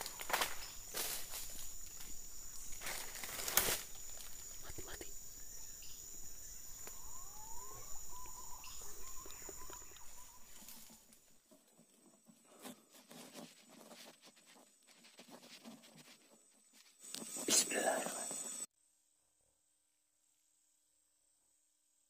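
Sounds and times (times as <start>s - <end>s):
high-pitched insect drone: 0.0s - 11.1s, 17.0s - 18.7s
faint rustles and clicks: 9.1s - 18.4s.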